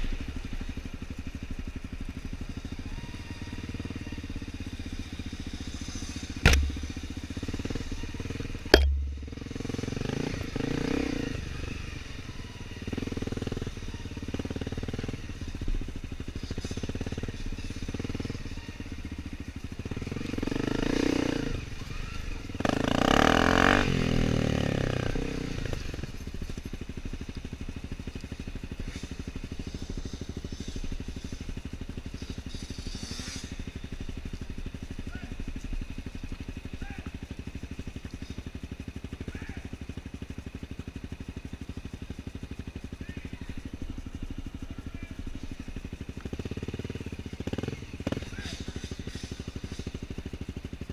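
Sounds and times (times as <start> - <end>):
dirt bike engines running: 0.0 - 50.9
sharp bangs: 6.4 - 7.3, 8.7 - 9.8.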